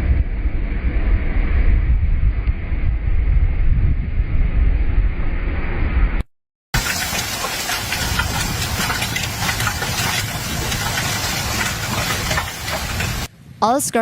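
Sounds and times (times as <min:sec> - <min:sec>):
hurricane wind: 0:00.0 - 0:06.2, 0:06.8 - 0:14.0
driving rain spattering: 0:06.8 - 0:13.3.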